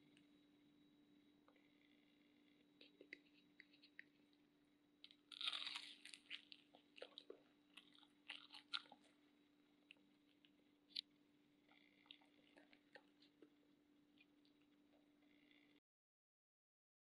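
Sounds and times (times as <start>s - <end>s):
crunchy fried food being chewed: 2.7s - 4.4s, 5.0s - 11.1s, 11.7s - 15.8s.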